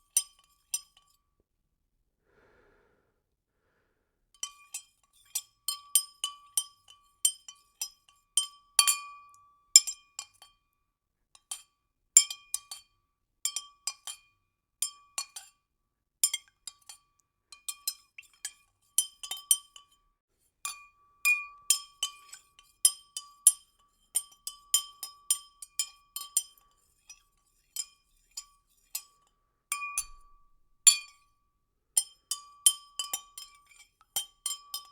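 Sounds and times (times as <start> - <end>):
spoon clinking in a glass: 17.6 - 20.0, 21.3 - 31.2, 32.0 - 34.9.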